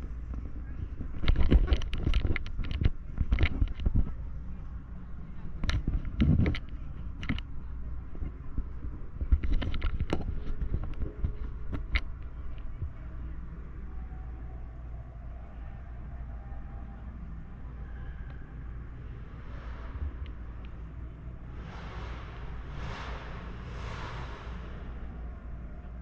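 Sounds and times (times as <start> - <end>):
faint voices: 0.0 - 26.0
traffic rumble: 0.0 - 26.0
sharp clicks and knocks: 9.2 - 12.7.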